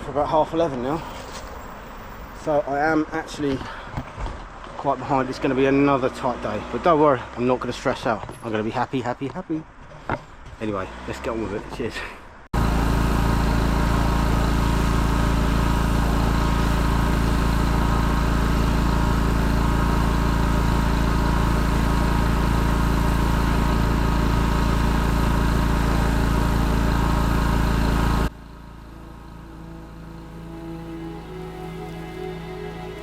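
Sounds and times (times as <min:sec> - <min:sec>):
pressure washer engine droning: 0:12.6 - 0:33.0.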